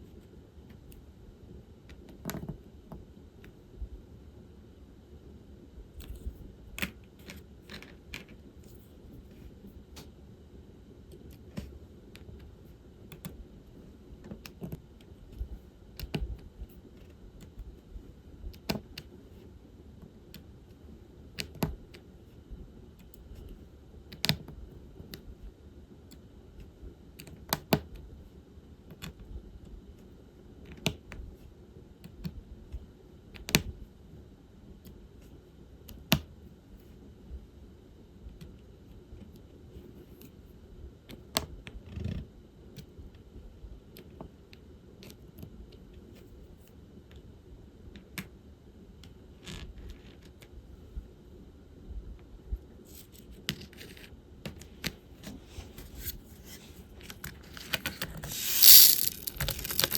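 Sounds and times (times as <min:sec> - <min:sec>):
scratchy rustle: 0:58.2 - 0:59.9.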